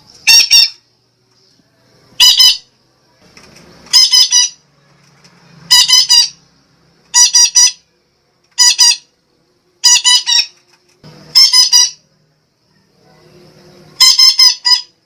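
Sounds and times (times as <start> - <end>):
parakeet squawking: 0.3 - 0.8, 2.2 - 2.7, 3.9 - 4.6, 5.7 - 6.5, 7.1 - 7.9, 8.6 - 9.1, 9.8 - 10.6, 11.3 - 12.1, 14.0 - 15.0.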